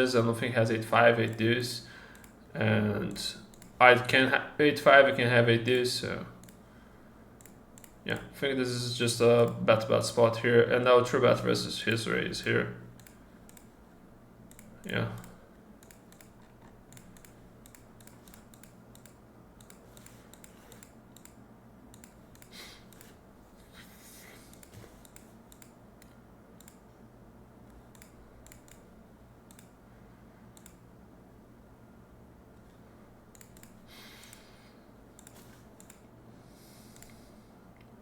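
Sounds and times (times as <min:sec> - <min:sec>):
low steady hum: 0:00.0 - 0:38.0
computer mouse and keys clicking: 0:02.1 - 0:02.4, 0:03.4 - 0:04.1, 0:05.7 - 0:06.6, 0:07.4 - 0:08.3, 0:11.8 - 0:13.7, 0:14.5 - 0:23.2, 0:24.4 - 0:27.0, 0:27.6 - 0:29.8, 0:30.5 - 0:30.9, 0:32.6 - 0:34.5, 0:35.1 - 0:36.1, 0:36.8 - 0:37.2.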